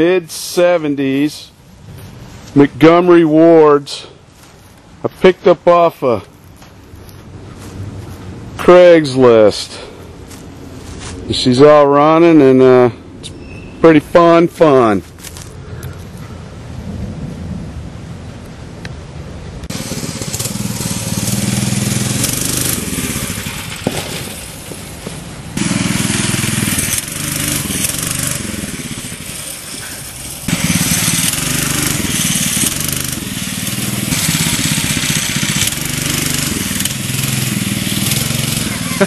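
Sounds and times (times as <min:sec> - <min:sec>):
small bike engine revving: 0:19.7 - 0:39.0.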